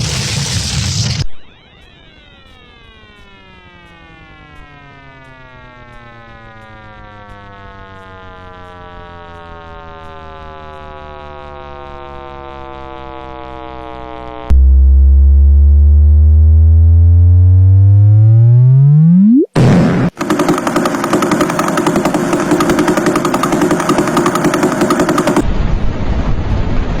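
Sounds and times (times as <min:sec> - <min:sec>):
synthesized rising tone: 0:01.3 - 0:25.4
deep tone sweeping upward: 0:08.2 - 0:20.1
noise burst: 0:14.5 - 0:25.8.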